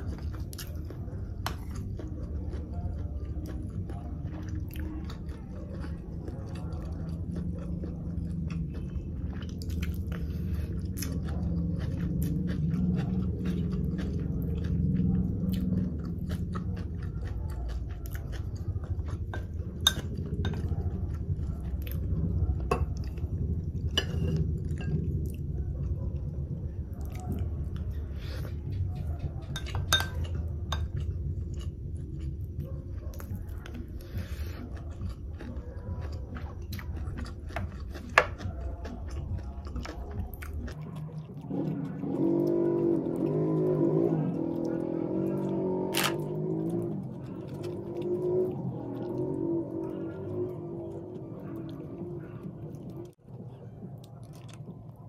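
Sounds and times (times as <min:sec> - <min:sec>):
wet chewing mouth sounds: 0:00.0 - 0:55.0.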